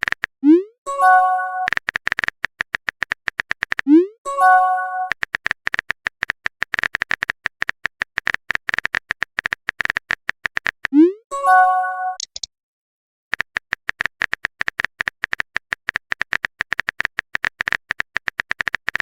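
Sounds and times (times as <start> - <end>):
keyboard tap clicks: 12.2 - 12.5.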